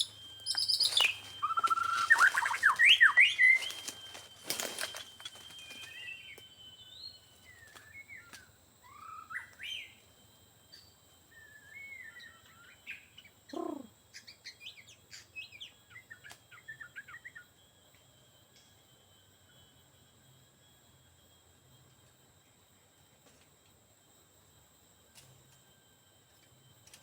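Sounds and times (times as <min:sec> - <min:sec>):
short bird chirps: 0:00.0 - 0:03.8
bird singing whistled phrases: 0:00.0 - 0:10.0, 0:11.3 - 0:17.4.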